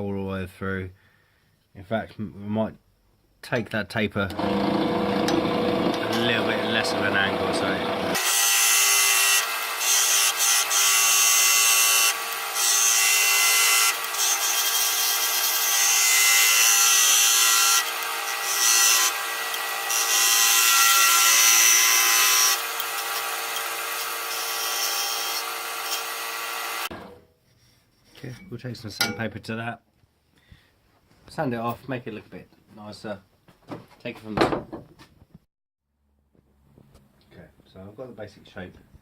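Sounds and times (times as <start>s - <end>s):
lathe motor hum: 4.3s - 8.2s
turning tool scraping wood: 4.3s - 8.2s.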